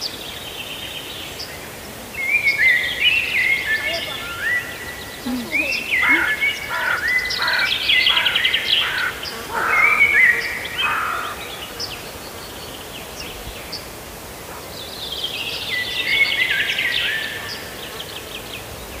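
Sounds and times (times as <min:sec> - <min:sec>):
songbirds trilling: 0:00.2 - 0:14.0.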